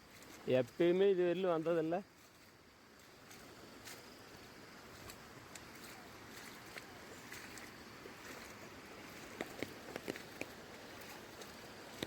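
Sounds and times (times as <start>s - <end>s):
floodwater rushing: 2.2s - 12.0s
faint ticks: 4.9s - 8.5s, 9.2s - 12.0s.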